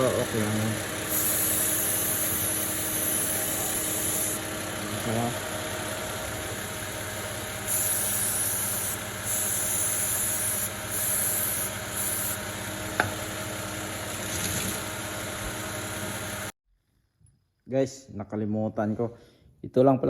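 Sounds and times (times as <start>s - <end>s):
aerosol spray hissing: 1.0s - 4.4s, 7.6s - 12.4s.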